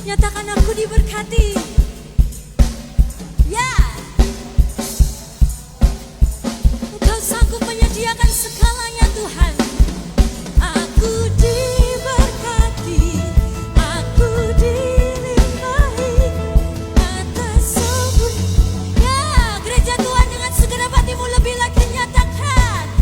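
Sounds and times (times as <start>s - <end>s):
worship band playing: 0.0s - 23.0s
people singing: 10.6s - 23.0s.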